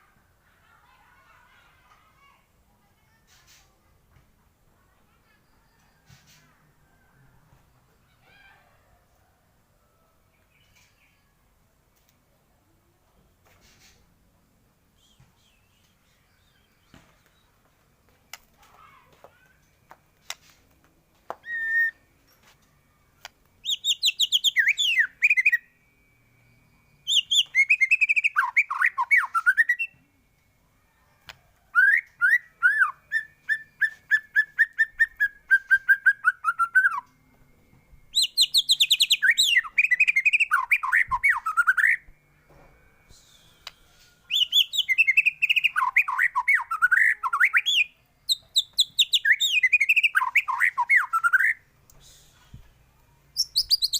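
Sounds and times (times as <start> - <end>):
bird singing whistles and trills: 14.9 - 17.5, 21.4 - 22.1, 23.6 - 30.0, 31.7 - 37.2, 37.9 - 42.1, 43.0 - 52.4, 53.3 - 53.9.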